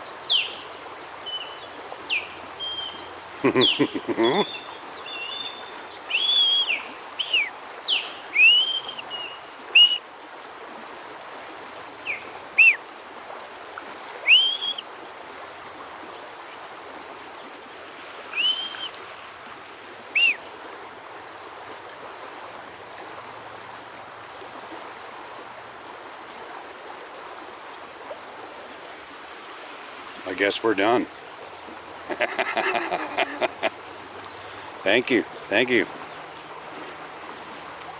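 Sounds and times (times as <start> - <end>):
river water rushing: 0.0 - 37.9
ospreys whistled chirps: 0.3 - 10.1, 12.0 - 12.8, 14.2 - 14.9, 18.3 - 19.0, 20.1 - 20.4.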